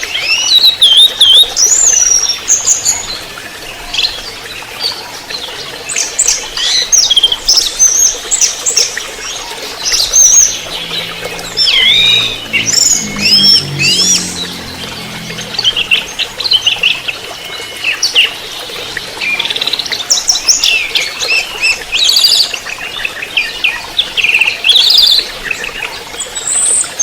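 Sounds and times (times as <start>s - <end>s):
thrush singing: 9.2s - 21.9s.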